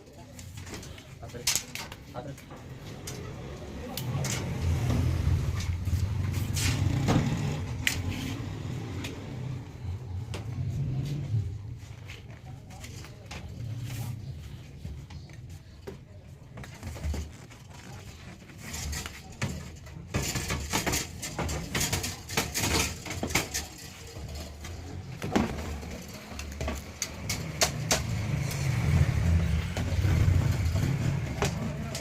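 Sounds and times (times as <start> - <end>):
clicks and clattering knocks: 18.7 - 28.6.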